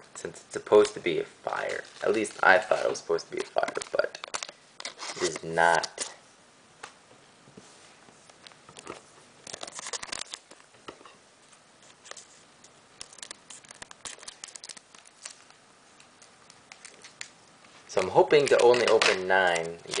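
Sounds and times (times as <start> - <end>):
cards rustling: 0.8 - 6.2, 8.3 - 10.7, 11.8 - 20.0.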